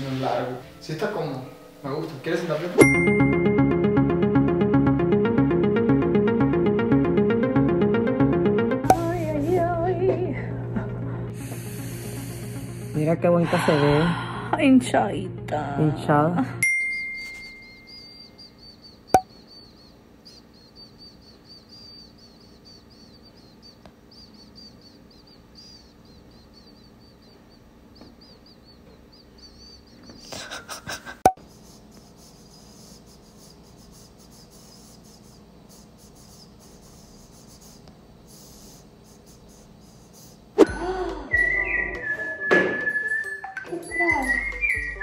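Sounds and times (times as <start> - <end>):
small birds twittering: 0.0 - 2.7, 16.9 - 40.6, 41.4 - 45.0.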